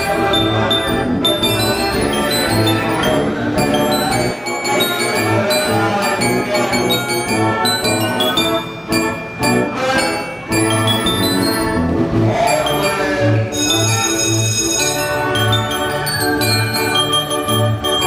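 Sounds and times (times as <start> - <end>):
band organ playing a tune: 0.0 - 18.0
bells ringing: 0.0 - 18.0.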